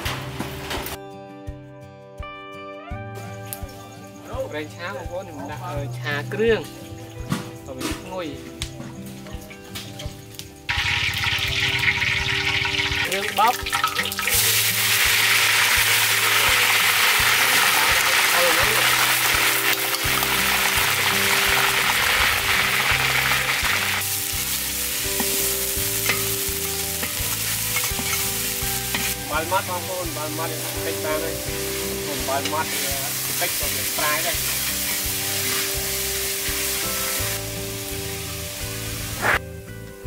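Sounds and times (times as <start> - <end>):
curry paste sizzling in oil: 10.6 - 39.4
metal ladle scraping a wok: 26.9 - 29.2.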